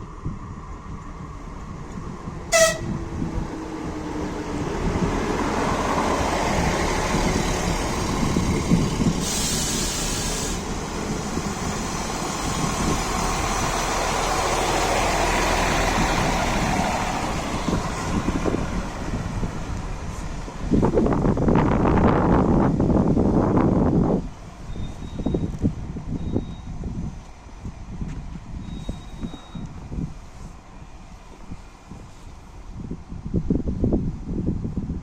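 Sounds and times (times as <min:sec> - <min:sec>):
railbus diesel engine: 0:00.0 - 0:35.0
train wheels on rails: 0:00.7 - 0:21.0
train horn toot: 0:02.5 - 0:03.0
short hiss: 0:09.2 - 0:10.7.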